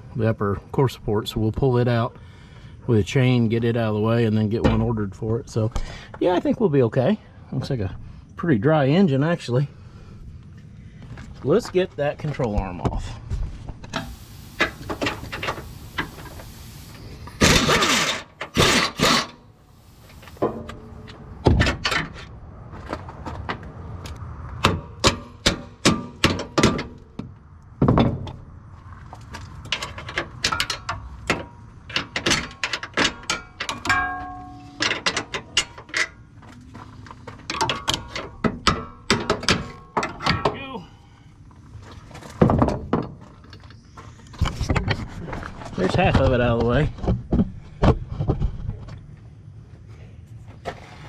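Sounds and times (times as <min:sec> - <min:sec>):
tools clanking on metal: 0:13.9 - 0:19.4, 0:20.0 - 0:22.3, 0:29.7 - 0:36.2, 0:37.4 - 0:40.6.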